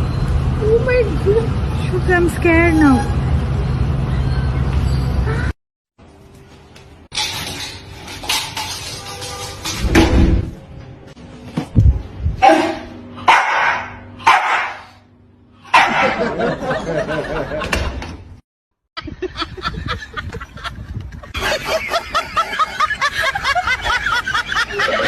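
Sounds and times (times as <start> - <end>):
dog barking: 12.4 - 15.0, 15.7 - 16.2.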